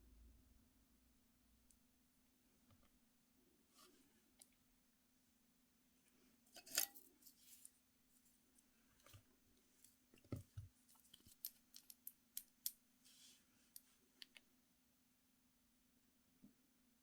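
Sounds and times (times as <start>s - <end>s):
small hard objects clicking: 11.2s - 12.8s.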